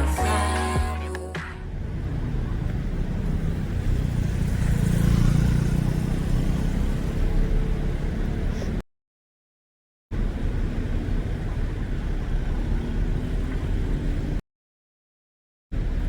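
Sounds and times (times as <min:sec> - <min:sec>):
road traffic: 0:00.0 - 0:08.8, 0:10.1 - 0:14.4, 0:15.7 - 0:16.0
vehicle passing: 0:01.5 - 0:08.6.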